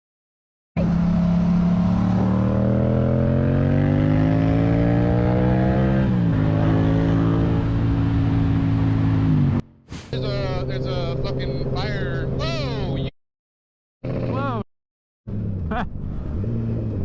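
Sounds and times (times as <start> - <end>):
motorcycle engine accelerating: 0.8 - 12.5.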